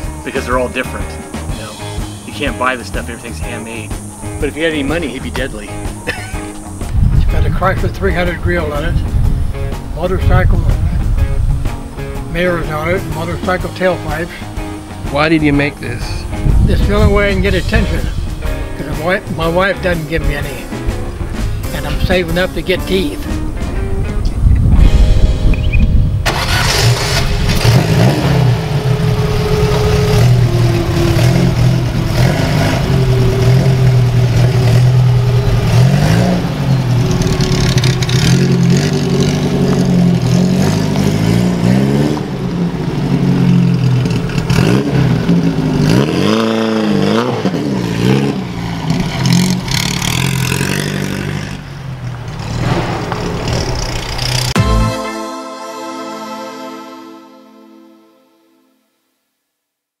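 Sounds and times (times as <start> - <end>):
car engine revving: 26.2 - 54.8.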